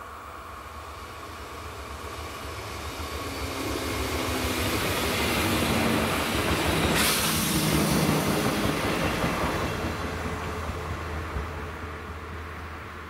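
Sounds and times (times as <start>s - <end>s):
wheel and rail hiss: 0.0s - 9.8s
train passing: 0.0s - 13.0s.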